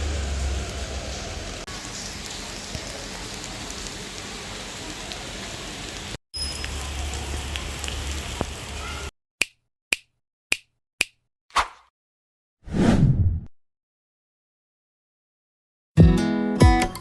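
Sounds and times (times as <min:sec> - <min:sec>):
steady rain hiss: 0:00.0 - 0:08.9
water dripping: 0:06.4 - 0:09.1.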